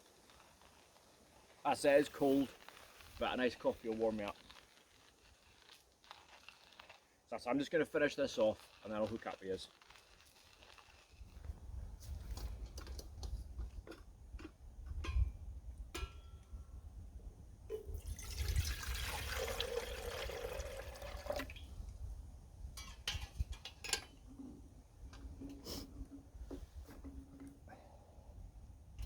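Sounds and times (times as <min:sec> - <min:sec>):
wind rumble on microphone: 0:11.2 - 0:18.0, 0:21.6 - 0:23.8
liquid pouring into a vessel: 0:17.7 - 0:21.8.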